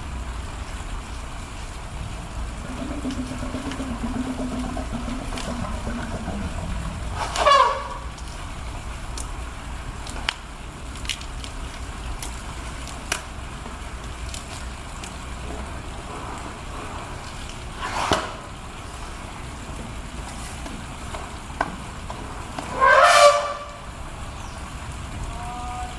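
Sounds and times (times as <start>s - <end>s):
low background rumble: 0.0s - 25.9s
elephant trumpeting: 2.2s - 8.7s, 22.4s - 24.0s.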